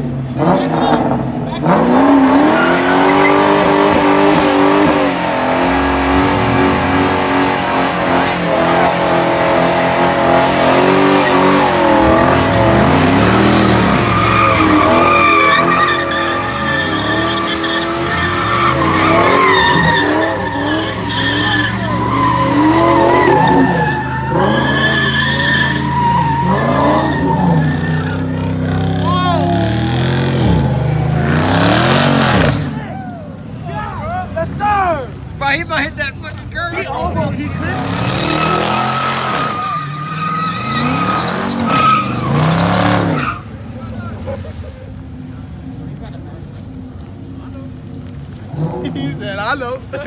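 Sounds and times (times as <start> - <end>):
car engine at high revs: 0.0 - 32.9, 37.0 - 50.0
tyres squealing: 0.4 - 44.0.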